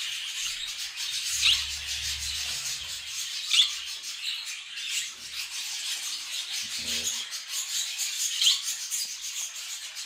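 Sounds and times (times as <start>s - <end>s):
sharp rising bird chirps: 0.0s - 4.6s
budgerigars chattering: 0.0s - 10.0s
low rumble: 1.2s - 3.3s.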